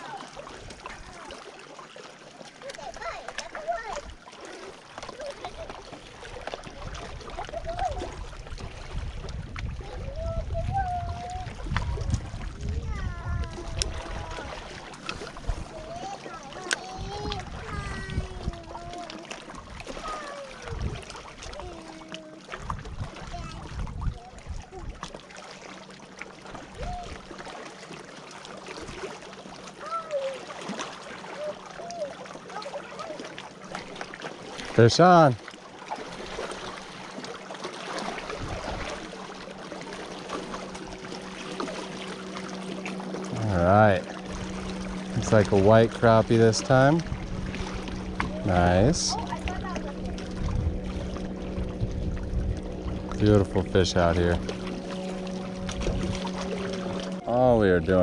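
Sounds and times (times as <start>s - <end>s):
faint wash of water: 0.0s - 58.0s
small waves lapping: 0.0s - 58.0s
wind rumbling on microphone: 6.3s - 21.8s, 22.5s - 25.2s, 26.5s - 27.3s, 38.0s - 39.2s, 40.3s - 58.0s.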